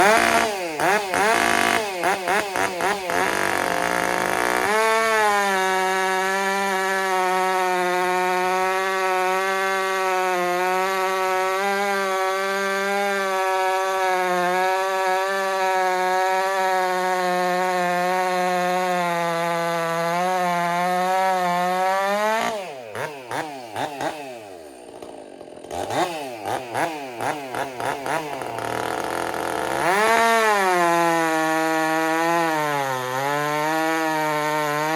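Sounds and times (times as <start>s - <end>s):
chainsaw revving: 0.0s - 34.9s.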